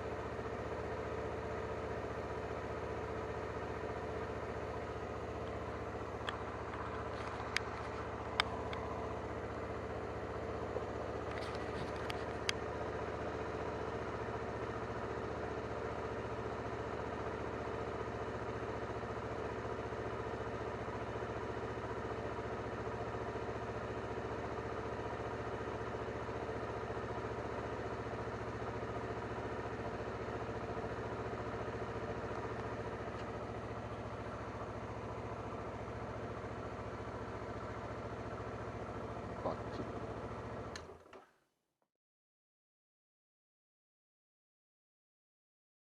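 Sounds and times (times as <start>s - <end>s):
motorcycle engine idling: 0.0s - 41.0s.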